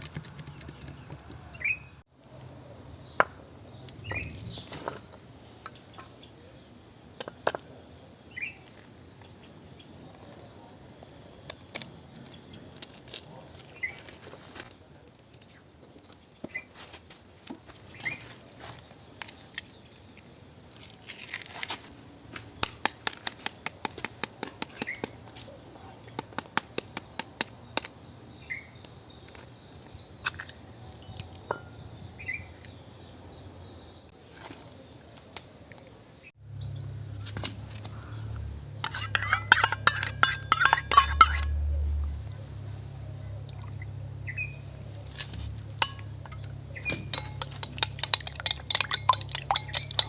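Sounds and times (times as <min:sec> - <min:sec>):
outdoor ambience: 0:00.0 - 0:50.0
birds chirping faintly: 0:24.4 - 0:50.0
steady low hum: 0:36.4 - 0:50.0
bright clinks: 0:38.0 - 0:42.2, 0:44.6 - 0:50.0.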